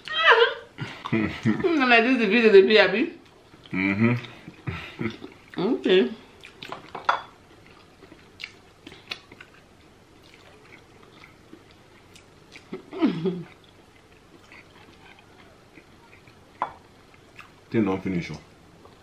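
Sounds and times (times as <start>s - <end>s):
chewing and lip smacking: 6.4s - 17.6s.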